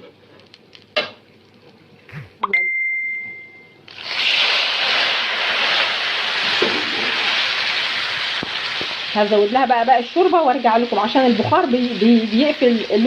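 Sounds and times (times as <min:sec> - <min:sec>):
high ringing tone: 0:02.4 - 0:03.8
liquid sizzling in hot pot: 0:03.8 - 0:13.0.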